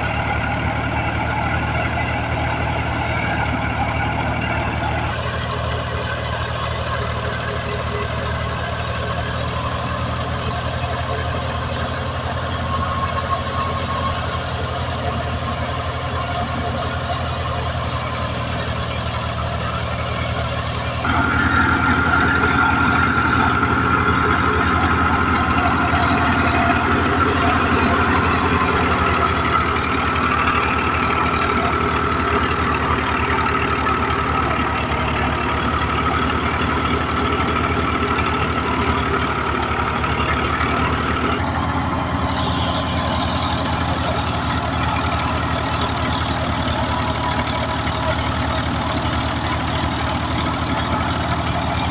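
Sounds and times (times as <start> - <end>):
tractor diesel engine running: 0.0 - 51.9
high whine: 10.9 - 51.9.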